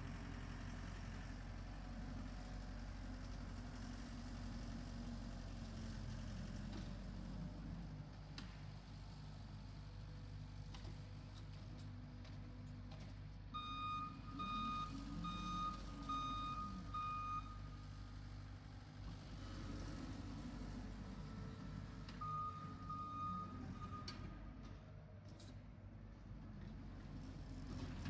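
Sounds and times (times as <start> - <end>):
back-up alarm beeping: 13.6 - 17.6.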